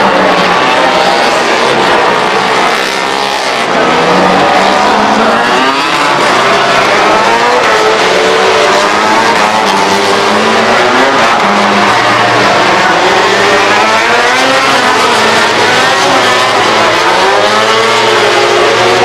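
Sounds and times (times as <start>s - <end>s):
motorcycle engines at high revs: 0.0s - 19.0s.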